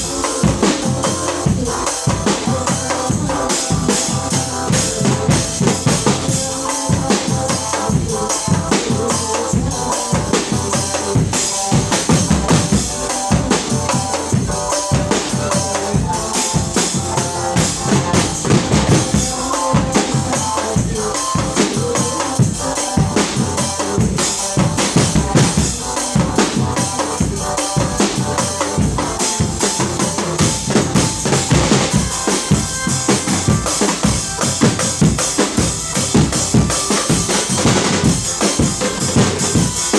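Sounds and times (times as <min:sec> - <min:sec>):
fast dense drumming: 0:00.0 - 0:39.9.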